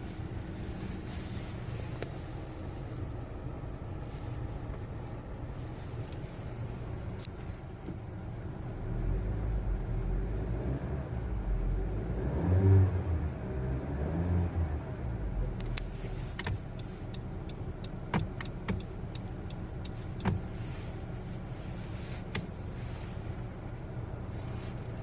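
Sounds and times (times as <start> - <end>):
car engine running: 0.0 - 12.3, 14.4 - 25.0
sharp clicks: 15.6 - 20.5.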